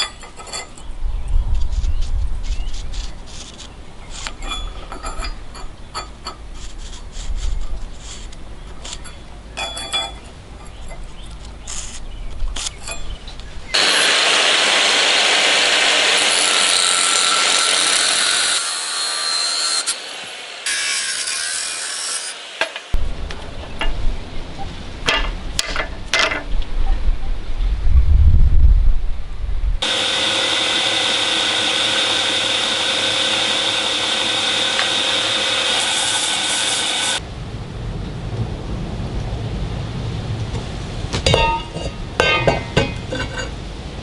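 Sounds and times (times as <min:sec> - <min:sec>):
metal scraping and clicking: 0:02.4 - 0:13.2, 0:41.3 - 0:43.6
power tool grinding: 0:13.7 - 0:23.0, 0:29.8 - 0:37.2
low rumble: 0:26.6 - 0:29.8, 0:37.2 - 0:41.1.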